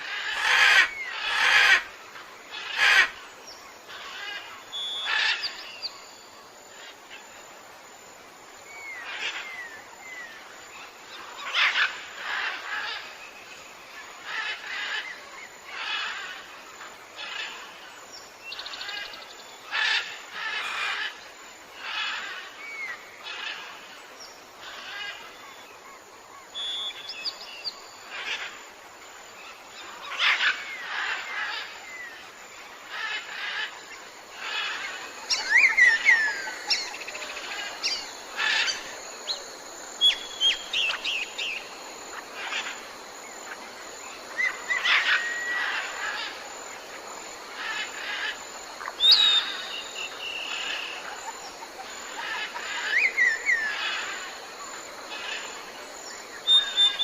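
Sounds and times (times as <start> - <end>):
steady background hiss: 0.0 - 57.0
birds calling: 29.4 - 57.0.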